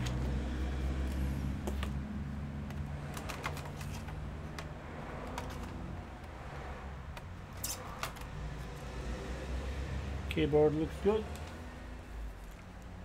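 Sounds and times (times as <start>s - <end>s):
plastic laptop parts clicking: 2.6s - 5.8s.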